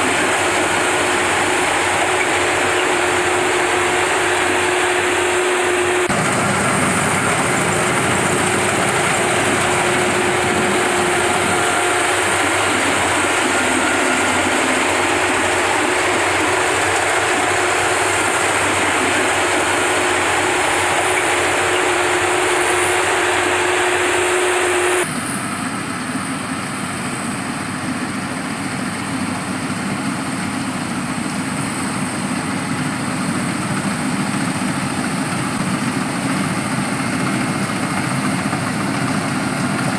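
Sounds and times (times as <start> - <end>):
harvesting machine engine: 0.0 - 39.9.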